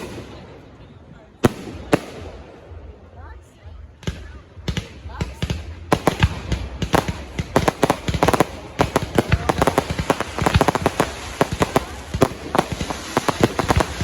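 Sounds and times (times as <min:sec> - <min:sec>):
fireworks bangs and cracks: 0:04.0 - 0:14.0.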